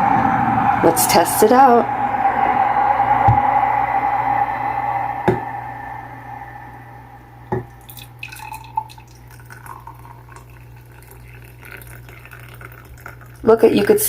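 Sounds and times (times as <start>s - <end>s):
hot water pouring into a cup: 7.6s - 14.0s.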